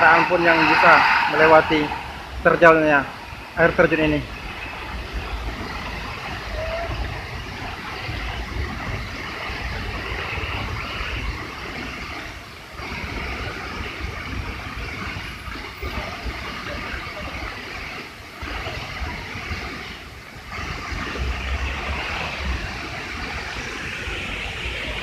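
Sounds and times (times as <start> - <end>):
low rumble: 0.0 - 11.4
waterfall rushing: 0.0 - 25.0.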